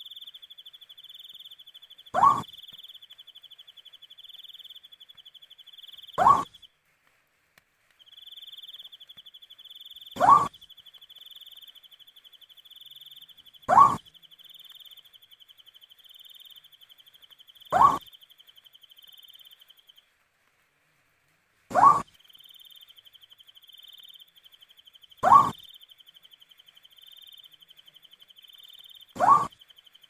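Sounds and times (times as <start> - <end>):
owl calling: 1.1 - 3.4, 5.8 - 6.6, 8.1 - 16.8, 17.6 - 19.8, 21.7 - 25.8, 28.3 - 29.8.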